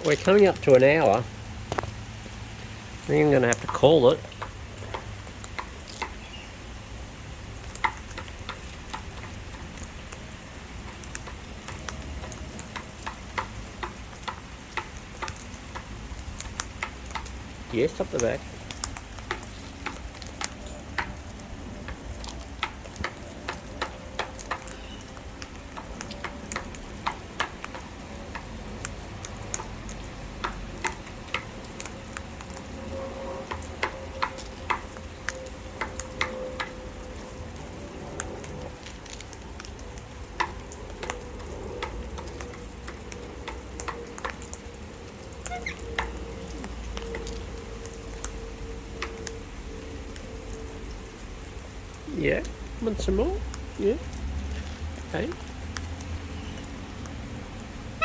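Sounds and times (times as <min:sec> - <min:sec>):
light rain pattering: 0:00.0 - 0:58.0
sharp taps and clicks: 0:03.0 - 0:06.3, 0:07.6 - 0:32.7, 0:33.4 - 0:37.6, 0:38.2 - 0:48.4.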